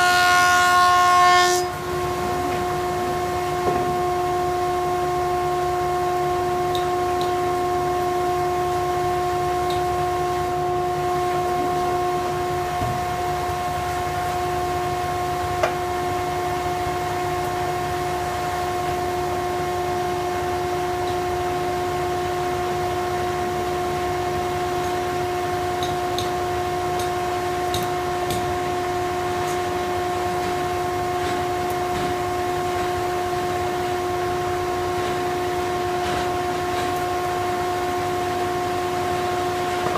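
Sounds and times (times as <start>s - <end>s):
thickness planer whining: 0.0s - 4.0s.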